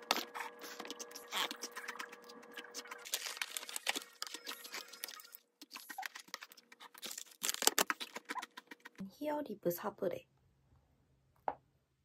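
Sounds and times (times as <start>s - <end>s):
crunching crisp cookie: 0.1s - 9.0s.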